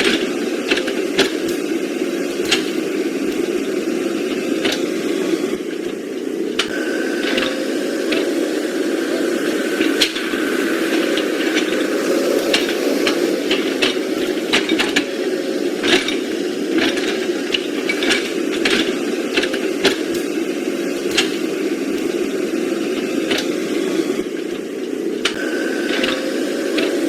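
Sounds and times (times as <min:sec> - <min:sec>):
small electric motor running: 0:00.0 - 0:27.0.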